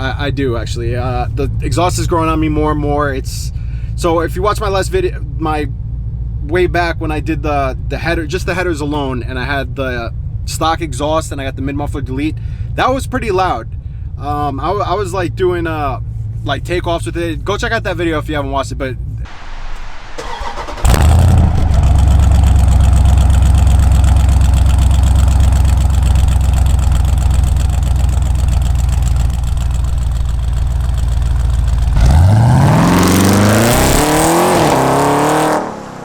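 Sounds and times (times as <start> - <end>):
loud deep engine revving: 19.3 - 36.0.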